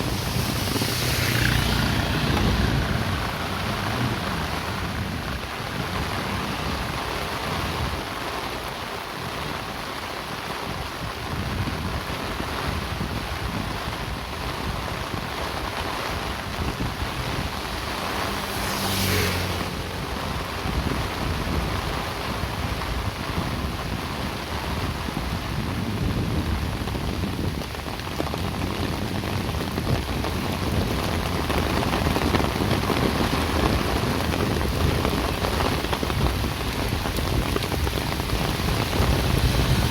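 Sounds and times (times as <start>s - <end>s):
vehicle passing by: 0.0s - 7.8s, 17.0s - 22.4s
steady rain falling: 0.0s - 39.9s.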